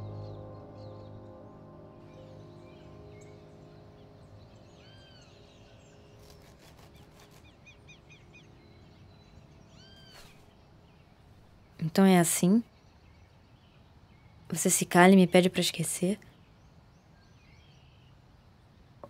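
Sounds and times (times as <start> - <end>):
film score music: 0.0 - 10.6
soft outdoor hiss: 0.0 - 19.0.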